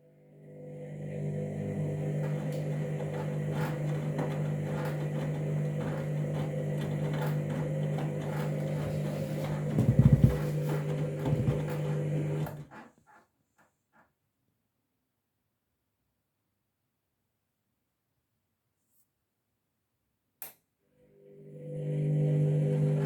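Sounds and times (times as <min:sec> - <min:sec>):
washing machine humming: 0:00.4 - 0:12.8, 0:21.1 - 0:23.0
washing machine low rumbles: 0:00.4 - 0:12.8, 0:21.2 - 0:23.0.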